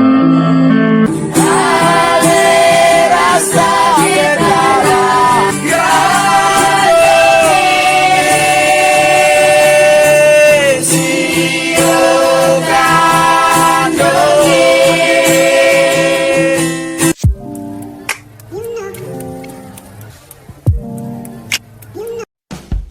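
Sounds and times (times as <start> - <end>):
musical backing: 0.0 - 22.9
person singing slow song: 1.3 - 17.0.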